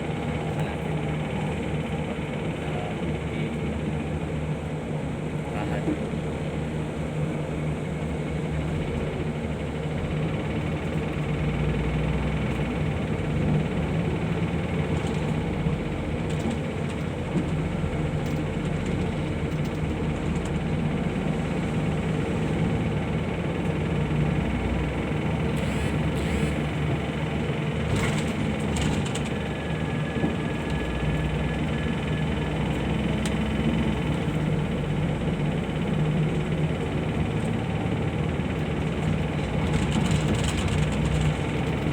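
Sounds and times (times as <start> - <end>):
bus engine drone: 0.0 - 41.9
road noise: 8.5 - 41.9.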